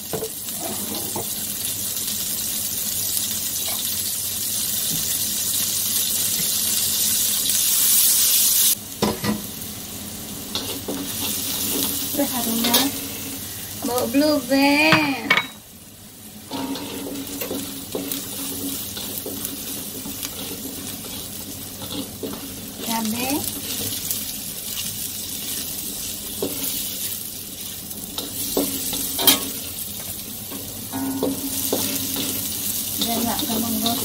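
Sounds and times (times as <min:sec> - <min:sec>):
vegetables sizzling in a wok: 0:00.0 - 0:34.0
spatula scraping and knocking pan: 0:16.5 - 0:24.0, 0:28.1 - 0:34.0.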